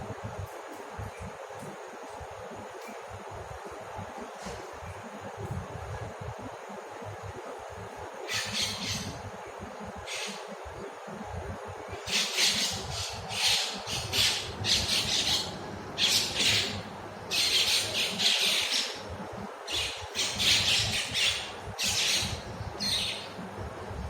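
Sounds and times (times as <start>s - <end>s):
birds squawking harshly: 8.2s - 9.2s, 10.0s - 10.5s, 12.0s - 19.0s, 19.7s - 23.3s.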